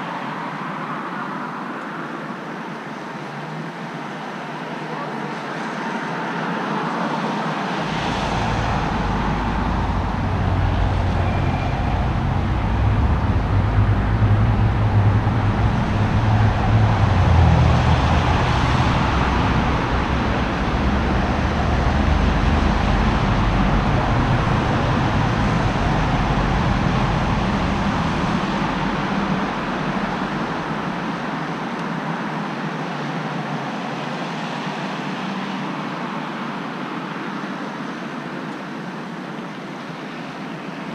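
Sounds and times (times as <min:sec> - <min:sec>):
road traffic hiss: 0:00.0 - 0:40.9
vehicle rumble: 0:07.6 - 0:34.0.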